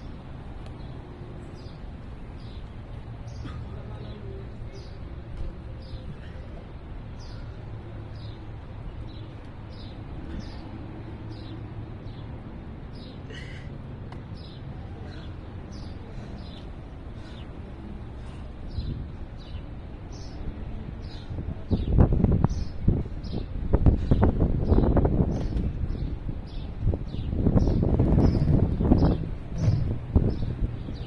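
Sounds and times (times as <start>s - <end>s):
low outdoor rumble: 0.0s - 31.0s
wind gust on microphone: 21.1s - 31.0s.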